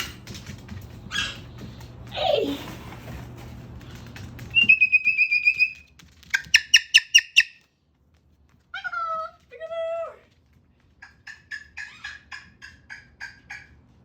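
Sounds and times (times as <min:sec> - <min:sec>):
cockatoo whistling: 0:04.5 - 0:07.5.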